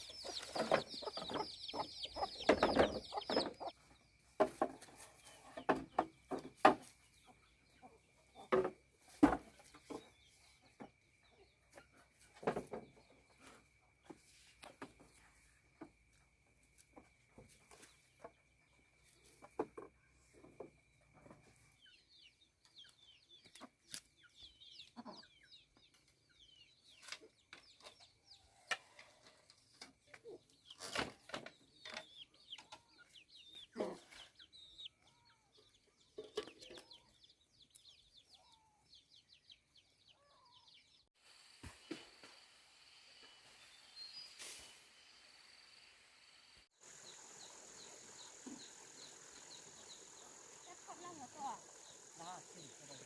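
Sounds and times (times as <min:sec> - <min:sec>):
faint birds chirping: 0:00.0 - 0:53.0.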